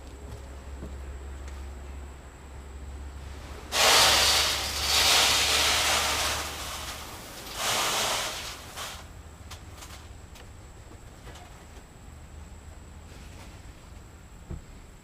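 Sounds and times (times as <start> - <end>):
grain pouring: 3.7 - 9.1.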